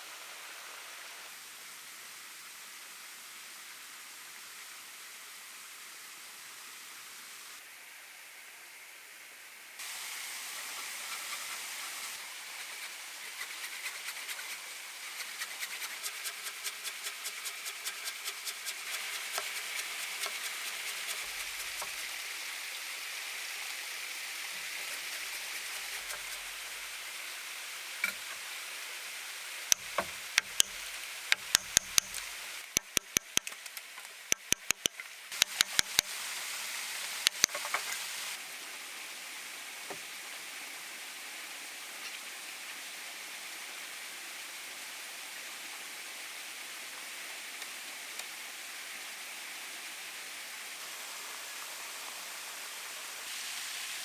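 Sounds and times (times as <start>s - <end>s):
steady hiss: 9.6s - 54.0s
quick light ticks: 29.7s - 36.1s, 37.3s - 37.6s
sharp knocks: 29.8s - 33.6s.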